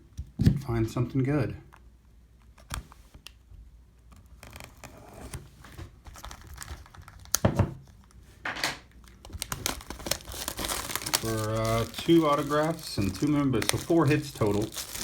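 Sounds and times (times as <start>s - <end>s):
packaging crinkling and rustling: 4.2s - 8.2s, 8.9s - 15.0s.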